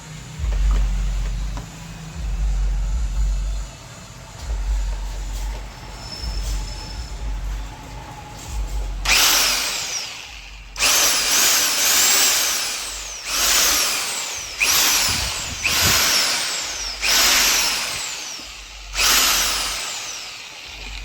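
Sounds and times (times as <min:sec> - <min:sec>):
rotary hammer motor whining: 0:04.4 - 0:21.0.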